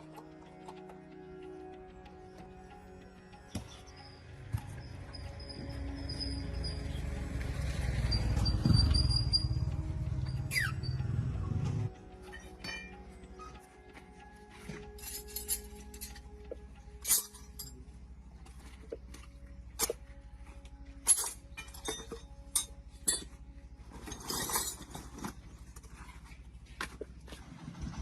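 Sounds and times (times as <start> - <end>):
low hum: 0.0 - 28.0
metal tools clinking: 12.3 - 13.6, 14.7 - 16.3, 17.0 - 17.9, 20.9 - 26.2
metal rattle: 17.0 - 17.8, 21.0 - 26.1.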